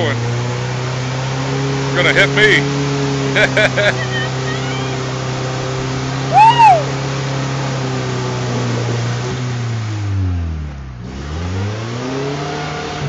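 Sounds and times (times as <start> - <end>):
car engine revving: 0.0 - 13.0
tires spinning in mud: 0.0 - 13.0
high squeal: 6.3 - 6.9.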